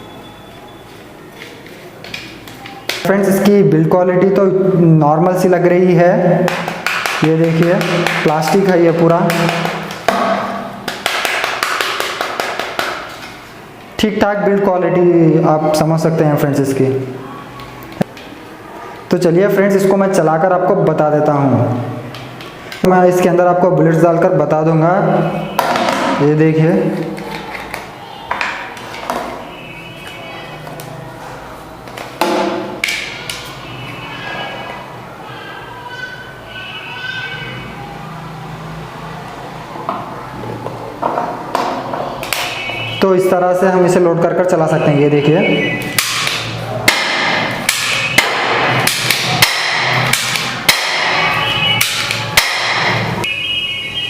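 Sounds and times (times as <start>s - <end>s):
faint high tone: 33.7s - 38.4s.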